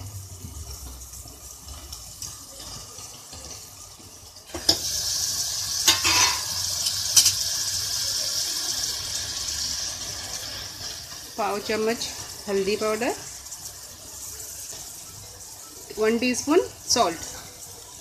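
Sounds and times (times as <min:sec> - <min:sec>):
vegetables sizzling in hot oil: 0:00.0 - 0:18.0.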